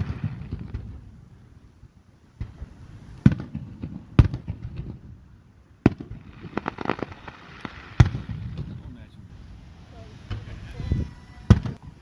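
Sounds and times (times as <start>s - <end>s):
fireworks booming: 0.0s - 1.5s, 2.4s - 12.0s
small fireworks pops: 2.4s - 5.1s, 5.8s - 9.0s, 10.2s - 12.0s.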